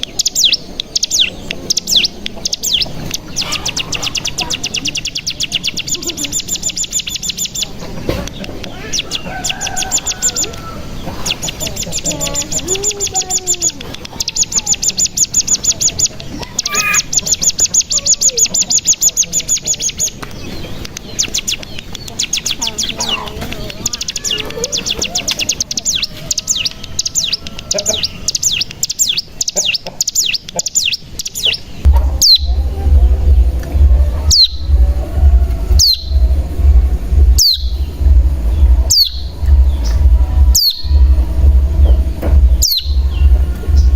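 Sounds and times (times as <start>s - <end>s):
bird chirping: 0.0s - 43.9s
downward-sweeping bird calls: 0.0s - 43.9s
bird buzzing trills: 31.8s - 43.9s
low hum: 31.8s - 43.9s.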